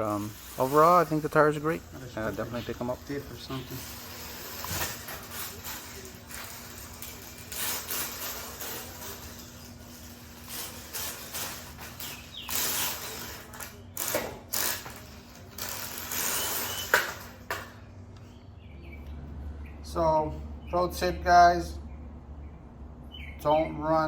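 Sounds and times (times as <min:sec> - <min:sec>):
toy truck motor ratcheting clatter: 0:00.0 - 0:17.7.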